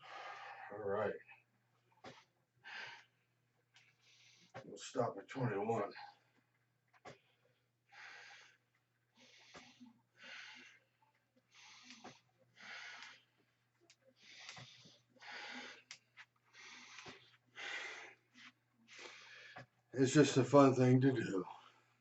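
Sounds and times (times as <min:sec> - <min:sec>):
man breathing hard: 0:00.0 - 0:00.8, 0:02.1 - 0:03.2, 0:07.9 - 0:13.5, 0:14.2 - 0:19.8.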